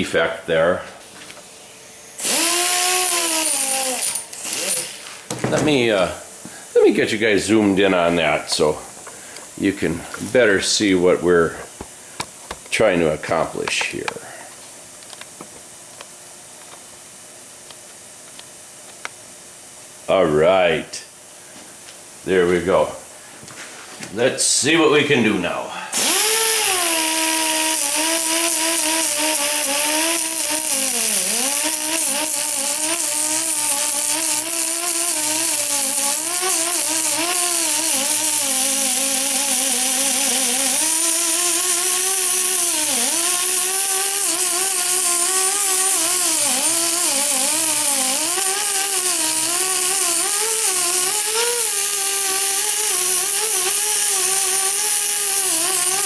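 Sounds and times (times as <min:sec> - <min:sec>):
angle grinder grinding metal: 0:02.1 - 0:06.1, 0:25.9 - 0:56.0.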